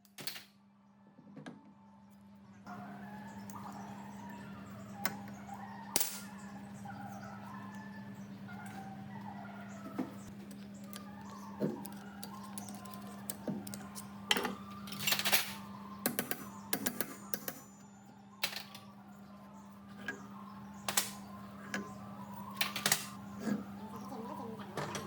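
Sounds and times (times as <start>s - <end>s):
clicks and knocks on metal parts: 22.6s - 23.1s.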